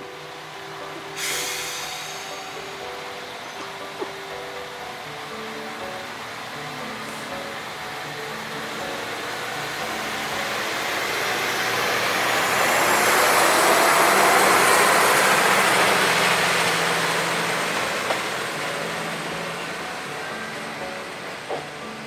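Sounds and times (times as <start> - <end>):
diesel railcar passing: 0.0 - 22.0.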